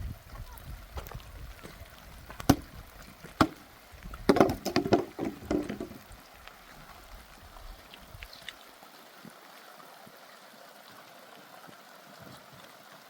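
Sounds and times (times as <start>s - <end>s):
running water: 0.0s - 13.0s
sharp clattering knocks: 4.3s - 6.0s.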